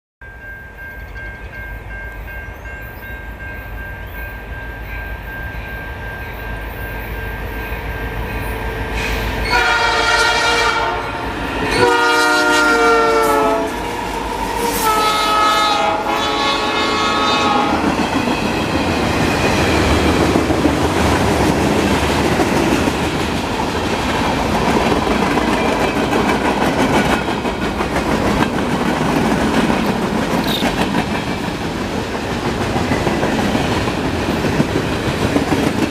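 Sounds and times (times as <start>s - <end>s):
train rumble: 0.8s - 35.9s
locomotive air horn blasts: 9.0s - 13.8s, 14.6s - 17.9s.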